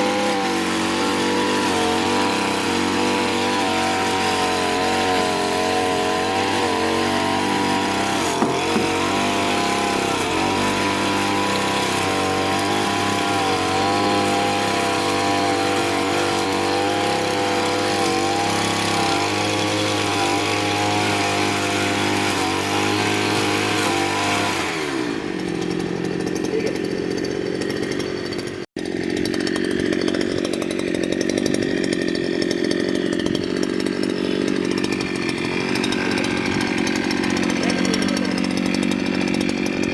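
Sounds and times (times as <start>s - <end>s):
brush cutter engine running: 0.0s - 39.9s.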